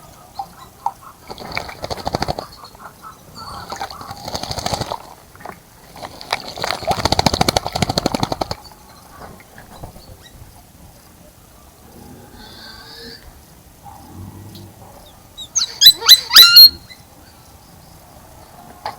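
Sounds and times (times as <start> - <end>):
bird splashing in water: 0.8 - 10.3.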